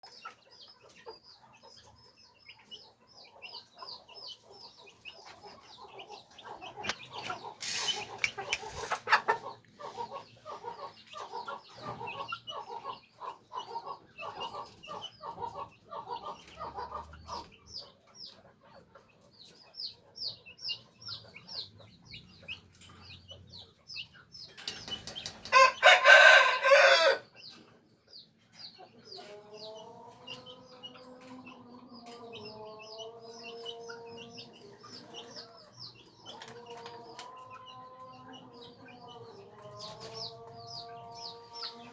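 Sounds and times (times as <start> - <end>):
roosters clucking: 0.0 - 41.9
rooster crowing loudly: 25.5 - 27.2.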